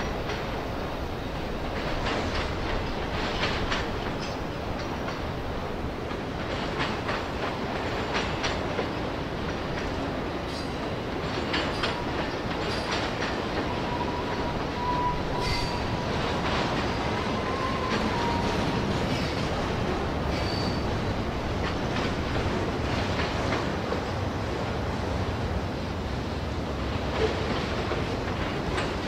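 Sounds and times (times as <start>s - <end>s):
freight train rolling past: 0.0s - 29.0s
wheels clicking over rail joints: 0.1s - 24.2s, 26.9s - 29.0s
thin wheel squeal: 14.8s - 15.9s.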